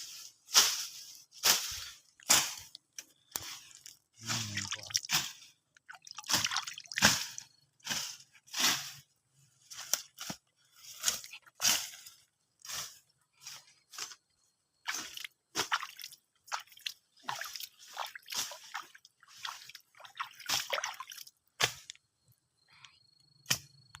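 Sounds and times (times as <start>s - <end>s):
water splashing and squelching: 1.5s - 7.5s, 14.8s - 21.3s.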